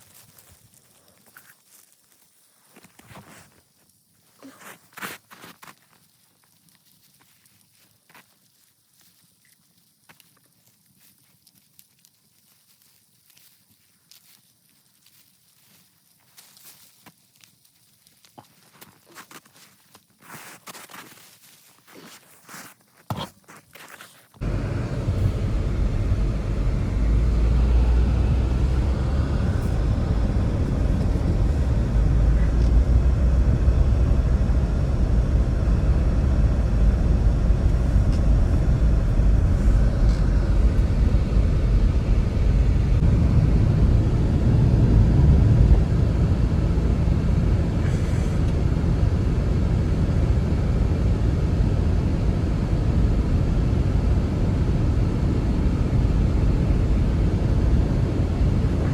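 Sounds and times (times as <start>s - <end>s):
strong wind rumbling: 24.4s - 58.9s.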